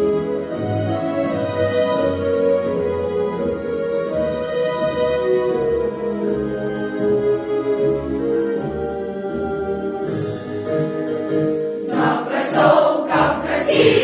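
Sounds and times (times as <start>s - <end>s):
choir singing: 11.9s - 14.0s.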